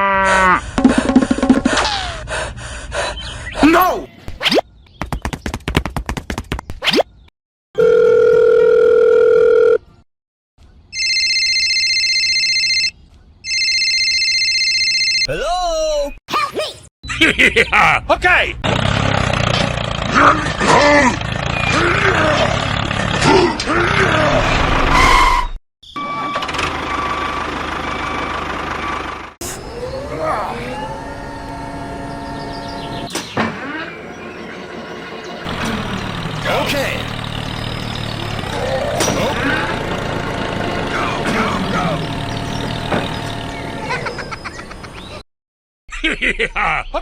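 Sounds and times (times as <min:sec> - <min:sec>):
buzzy telephone tone: 0:07.8 - 0:09.8, 0:11.0 - 0:12.9
electronic phone ringing: 0:07.8 - 0:09.8, 0:11.0 - 0:15.3
engine running with high whine: 0:26.0 - 0:45.0.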